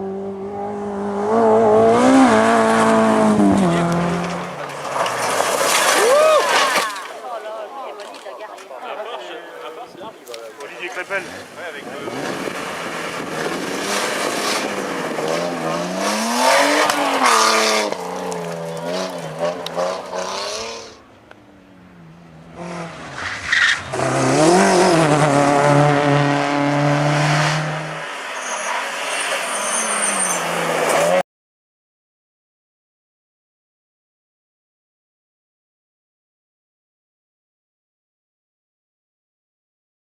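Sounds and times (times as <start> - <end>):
rally car engines revving: 0.0 - 7.2, 10.6 - 31.2
tyre and road noise: 0.0 - 31.2.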